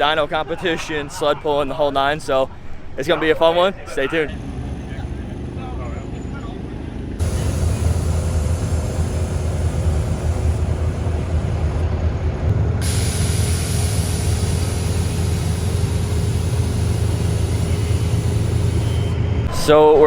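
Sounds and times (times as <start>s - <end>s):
heavy vehicle engine rumble: 4.0s - 19.6s
steady hiss: 7.2s - 11.8s, 12.8s - 19.1s.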